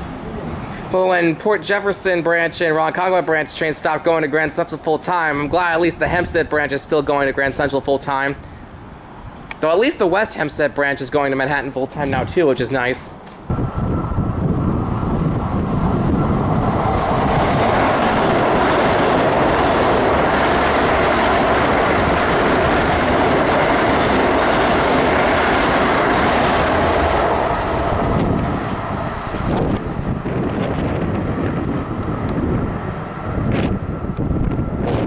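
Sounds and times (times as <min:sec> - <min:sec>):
train wheels rushing on rails: 0:13.2 - 0:35.0.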